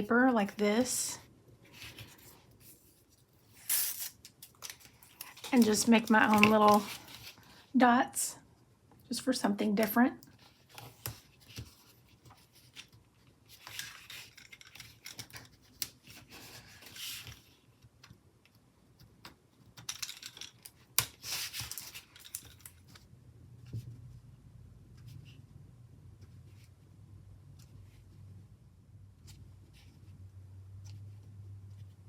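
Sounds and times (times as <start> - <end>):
paper handling: 1.7 - 7.4.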